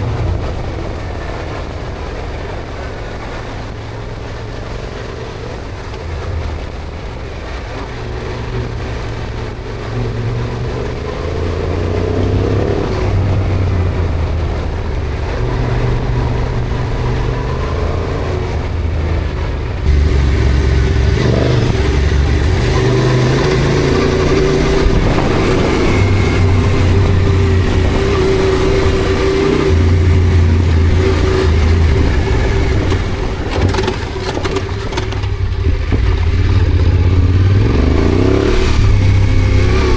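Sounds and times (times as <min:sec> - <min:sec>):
wind rumble on microphone: 0:00.0 - 0:39.9
motorcycle engine running: 0:19.6 - 0:39.9.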